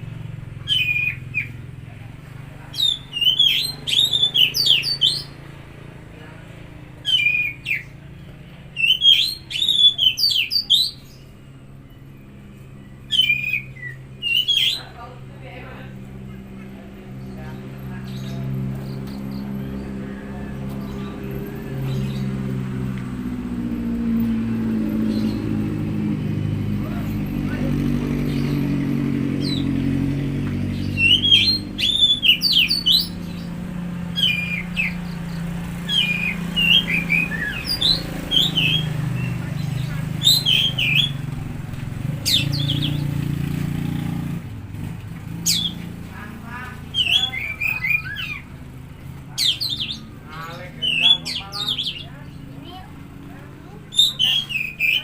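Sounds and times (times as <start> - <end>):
low engine hum: 0.0 - 55.0
bird chirping and whistling: 0.6 - 1.6, 2.7 - 5.4, 7.0 - 8.0, 8.7 - 11.2, 12.9 - 15.0, 29.4 - 30.0, 30.7 - 41.3, 42.0 - 43.2, 45.4 - 45.9, 46.8 - 48.6, 49.3 - 52.4, 53.8 - 55.0.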